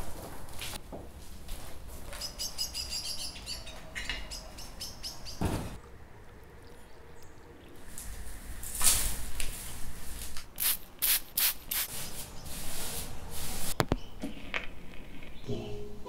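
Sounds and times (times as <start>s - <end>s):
small birds chirping: 2.1s - 8.3s
thump: 5.4s - 5.8s.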